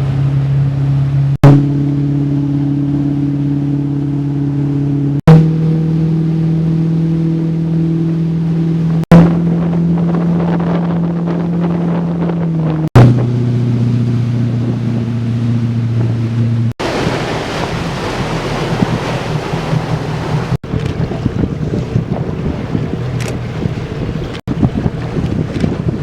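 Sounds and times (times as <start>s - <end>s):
boat motor running: 0.0s - 26.0s
water rushing: 0.0s - 26.0s
wind buffeting microphone: 8.2s - 26.0s.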